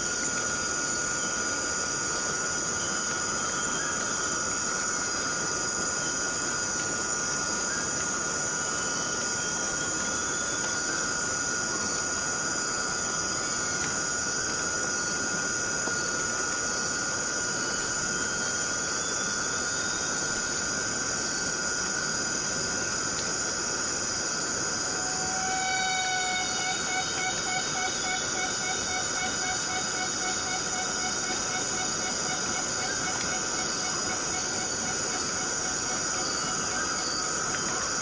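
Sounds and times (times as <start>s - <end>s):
high-pitched insect drone: 0.0s - 38.0s
rain on foliage: 4.0s - 38.0s.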